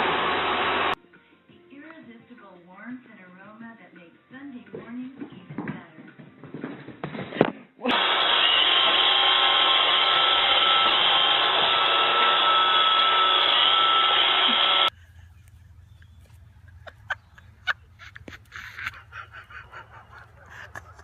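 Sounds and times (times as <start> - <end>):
electric motor whirring: 0.0 - 1.0, 7.9 - 14.9.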